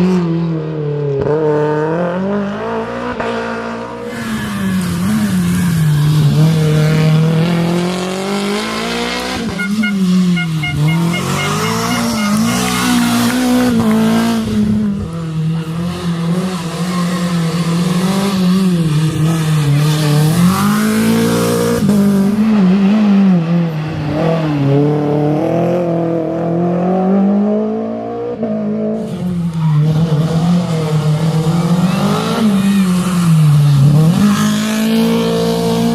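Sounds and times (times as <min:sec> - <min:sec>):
rally car engine revving: 0:00.0 - 0:35.9.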